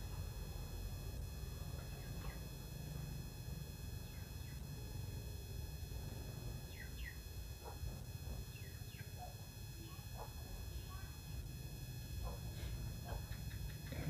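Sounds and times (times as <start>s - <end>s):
small birds chirping: 6.7s - 7.2s, 8.5s - 9.3s.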